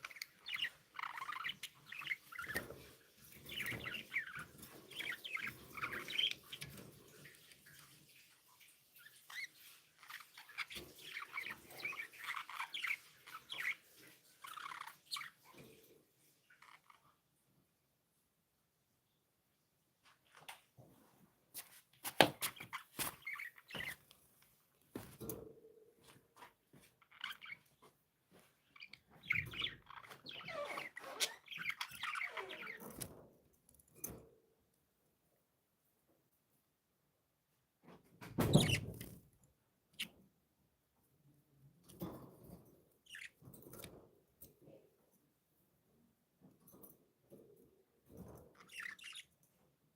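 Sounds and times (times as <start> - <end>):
budgerigars chirping: 0.0 - 6.8, 9.3 - 15.4, 28.7 - 33.0, 43.0 - 43.4, 48.6 - 49.3.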